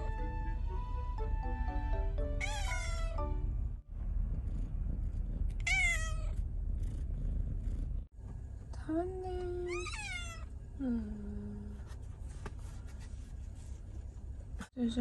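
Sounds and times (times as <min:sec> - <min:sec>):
background music: 0:00.0 - 0:03.8
cat meowing: 0:02.4 - 0:03.2, 0:05.6 - 0:06.3, 0:09.7 - 0:10.5.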